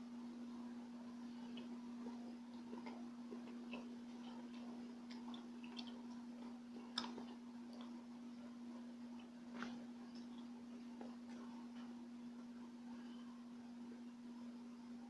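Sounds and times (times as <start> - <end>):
steady low hum: 0.0 - 15.0
person chewing: 1.3 - 12.0.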